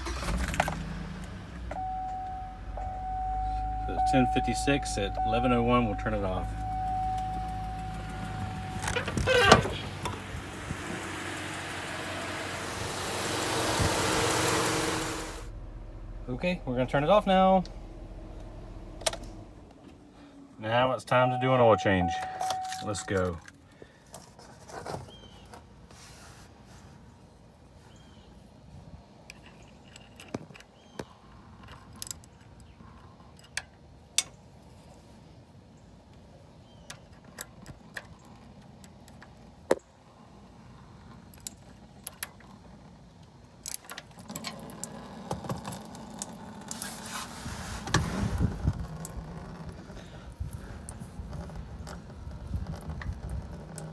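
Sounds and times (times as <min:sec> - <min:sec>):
car engine idling: 0:00.0 - 0:23.2
sliding squeal: 0:06.4 - 0:10.2.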